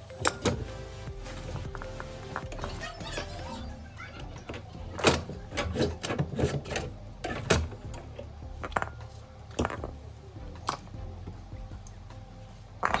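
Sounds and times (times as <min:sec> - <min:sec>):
low steady hum: 0:00.0 - 0:13.0
tools knocking and scraping: 0:00.0 - 0:13.0.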